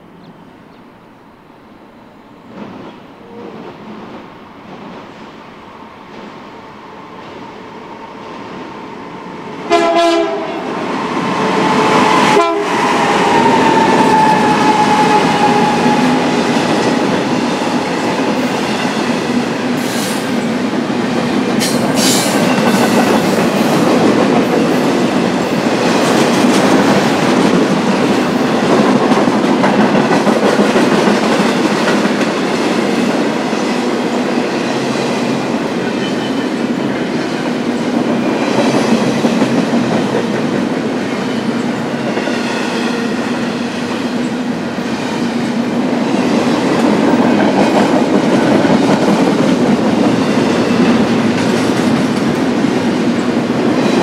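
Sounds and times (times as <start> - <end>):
train passing: 0.0 - 54.0
locomotive horn blast: 9.7 - 10.7, 12.1 - 16.3.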